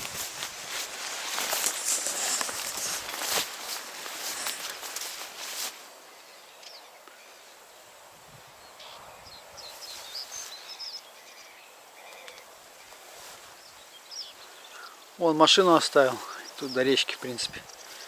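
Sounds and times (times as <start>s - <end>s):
small birds chirping: 0.0s - 7.6s, 8.5s - 18.0s
faint outdoor hush: 0.0s - 18.0s.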